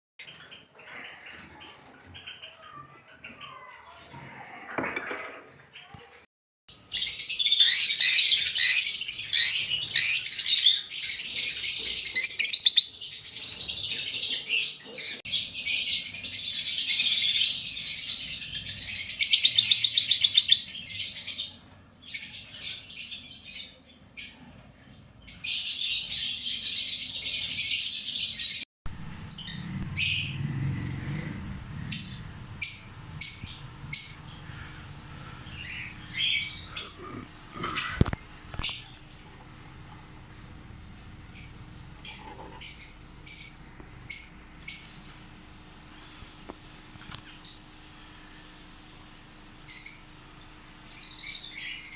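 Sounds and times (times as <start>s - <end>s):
low rumble: 28.9s - 37.5s
lovebirds chirping: 29.0s - 51.9s.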